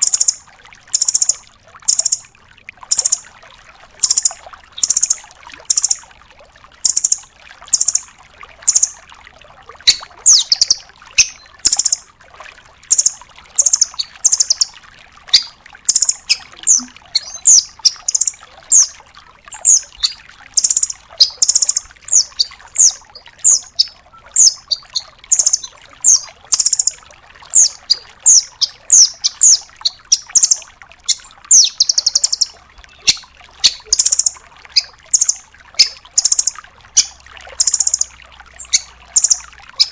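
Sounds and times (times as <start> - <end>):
bird calling with sharp notes: 0.0 - 2.3, 2.9 - 3.2, 4.0 - 6.0, 6.8 - 8.1, 9.9 - 12.0, 12.9 - 14.7, 15.3 - 39.9
rattling bird trills: 15.3 - 18.9, 27.5 - 39.9.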